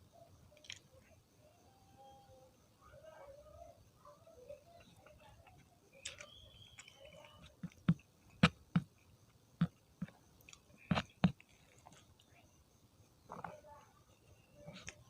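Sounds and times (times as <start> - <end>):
person chewing food: 4.6 - 12.3
wet crunches and mouth clicks: 4.8 - 12.2.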